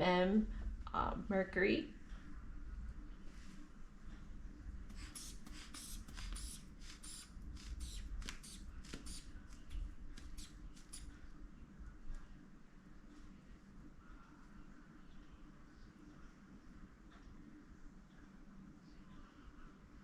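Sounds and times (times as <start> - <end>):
blood pressure bulb puffing: 4.9 - 11.1.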